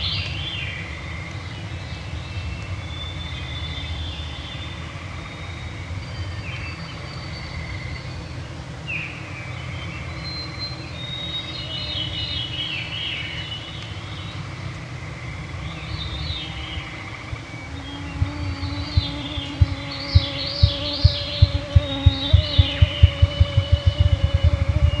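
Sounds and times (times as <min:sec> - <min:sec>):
songbirds singing: 0:00.0 - 0:25.0
steady low rumble: 0:18.1 - 0:25.0.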